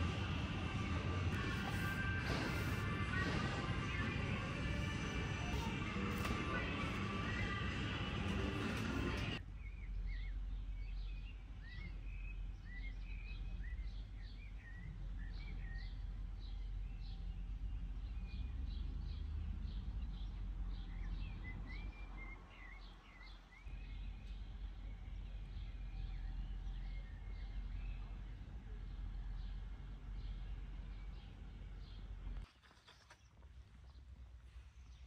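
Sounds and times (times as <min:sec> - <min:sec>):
music: 0:00.0 - 0:09.4
steady low rumble: 0:00.0 - 0:18.8
small birds chirping: 0:01.7 - 0:35.0.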